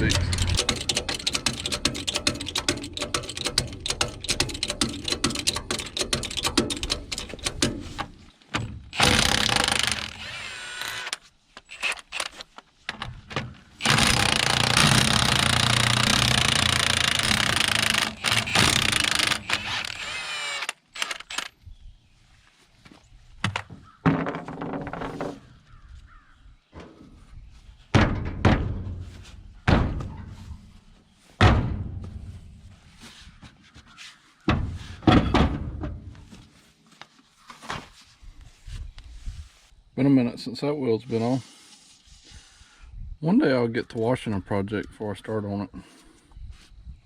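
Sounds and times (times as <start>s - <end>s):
impact wrench hammering: 0.0s - 7.8s
tools rattling and clanking: 0.0s - 10.2s, 10.8s - 20.1s.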